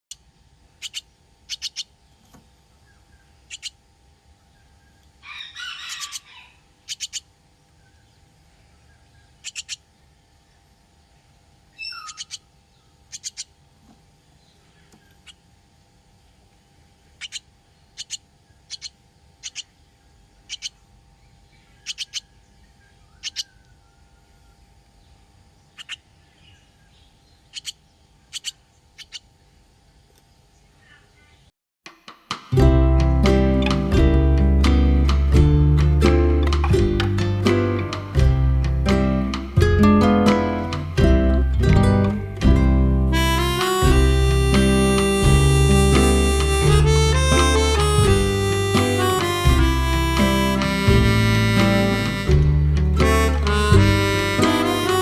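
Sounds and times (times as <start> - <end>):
baby bird peeping: 0.8 - 2.0, 3.1 - 3.8, 4.9 - 7.3, 8.9 - 9.9, 11.8 - 12.5, 13.1 - 13.6, 17.2 - 19.8, 20.4 - 20.8, 21.6 - 24.0, 25.7 - 26.1, 27.4 - 29.3, 33.7 - 55.0.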